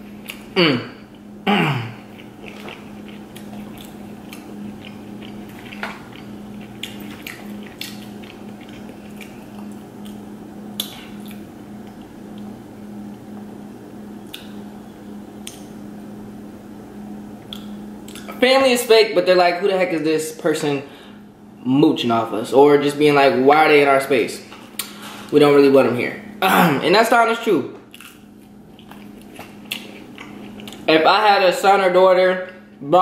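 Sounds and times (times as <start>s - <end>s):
steady low hum: 0.0s - 33.0s
chewing clicks and smacks: 2.1s - 12.5s, 14.2s - 14.6s, 15.4s - 15.7s, 17.4s - 18.4s, 27.9s - 30.9s.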